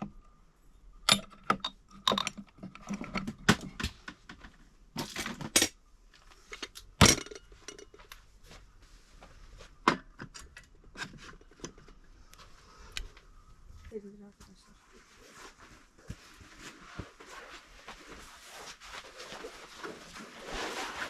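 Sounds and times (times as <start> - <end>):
hard objects clinking and knocking: 6.5 - 8.1.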